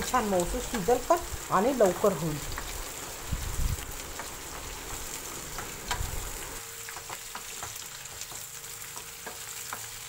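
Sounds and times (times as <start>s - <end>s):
oil crackling: 0.0s - 10.0s
vegetables sizzling in hot oil: 0.0s - 10.0s.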